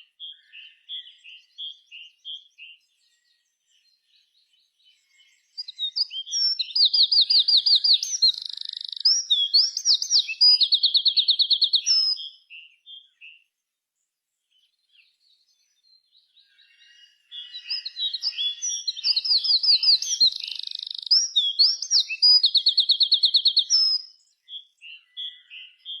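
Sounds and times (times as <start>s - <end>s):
songbird singing trills and whistles: 0.0s - 13.6s, 14.3s - 26.0s.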